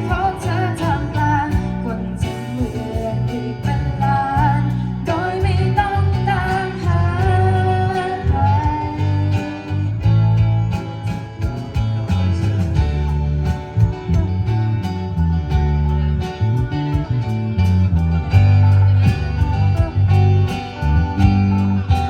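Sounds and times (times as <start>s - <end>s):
person singing: 0.0s - 10.0s
bass: 0.0s - 22.0s
guitar: 0.0s - 22.0s
regular beats: 0.0s - 22.0s.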